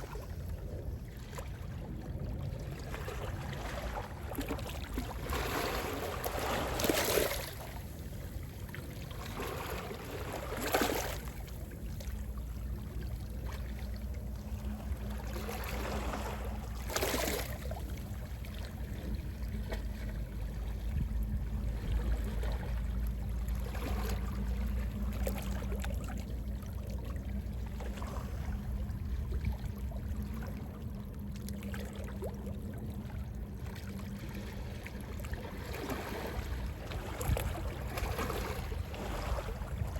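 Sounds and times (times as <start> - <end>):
sea waves washing ashore: 2.7 - 25.6.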